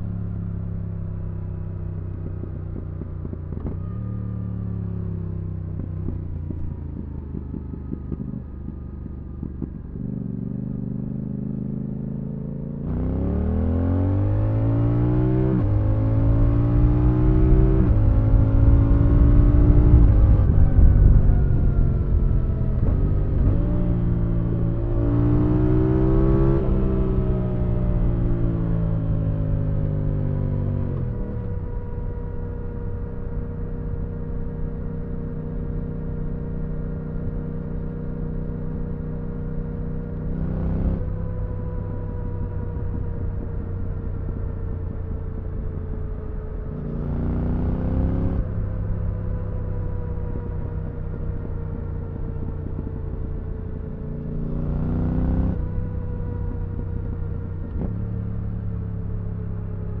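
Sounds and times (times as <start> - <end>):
motorcycle engine revving: 1.4 - 60.0.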